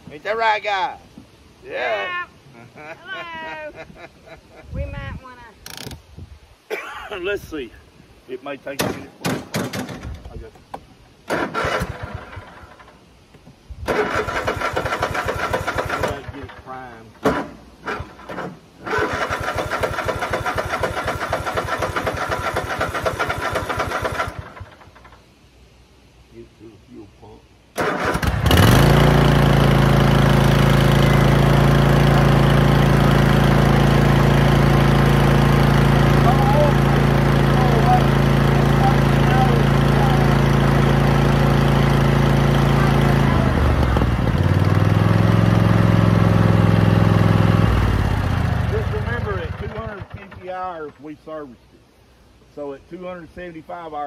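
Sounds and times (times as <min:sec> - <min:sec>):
lawnmower engine cranking: 0:05.6 - 0:06.0, 0:08.9 - 0:10.4, 0:11.2 - 0:13.0, 0:13.8 - 0:25.2, 0:27.8 - 0:51.1.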